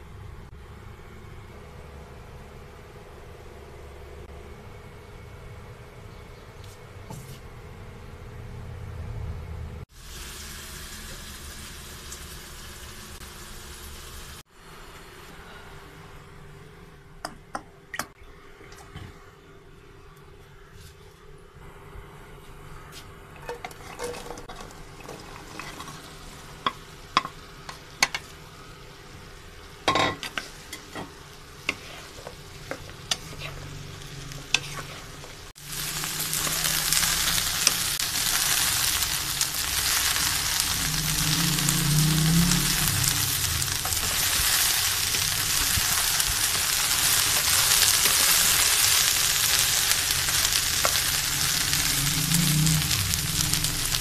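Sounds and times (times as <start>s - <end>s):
okra sizzling in oil: 9.9s - 15.0s, 23.4s - 54.0s.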